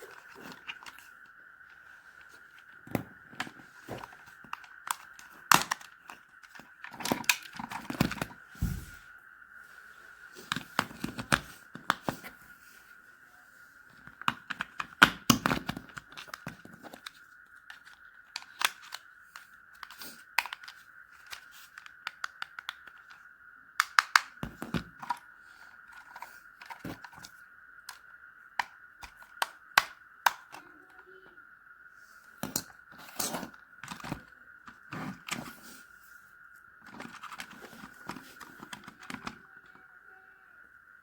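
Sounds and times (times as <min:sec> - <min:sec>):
faint steady high tone: 0:12.4 - 0:14.0, 0:25.1 - 0:32.7, 0:33.9 - 0:41.0
plastic toy clicks and taps: 0:14.2 - 0:23.2, 0:23.8 - 0:25.2, 0:28.6 - 0:30.6, 0:36.9 - 0:39.4.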